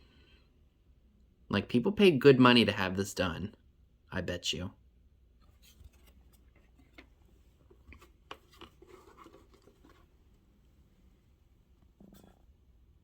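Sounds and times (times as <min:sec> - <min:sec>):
paper rustling: 0:05.4 - 0:10.4.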